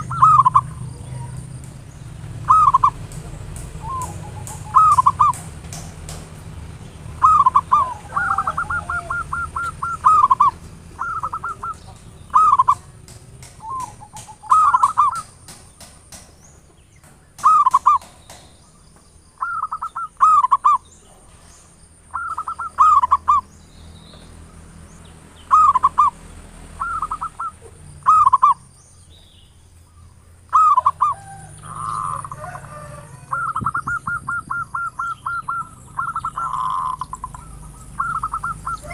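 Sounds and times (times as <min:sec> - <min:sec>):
dove cooing: 0:00.0 - 0:01.6, 0:02.2 - 0:06.4, 0:07.1 - 0:15.9, 0:17.4 - 0:18.2, 0:19.4 - 0:21.4, 0:22.1 - 0:23.4, 0:25.5 - 0:26.2, 0:26.8 - 0:28.6, 0:30.5 - 0:38.9.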